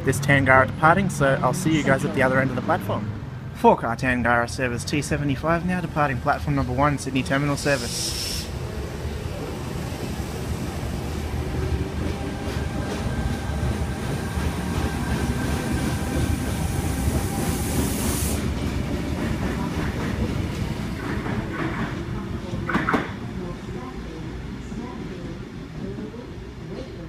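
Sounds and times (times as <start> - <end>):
faint train whine: 4.5 - 22.4
train wheels rumbling on rail: 5.0 - 27.0
high hiss: 7.5 - 8.7.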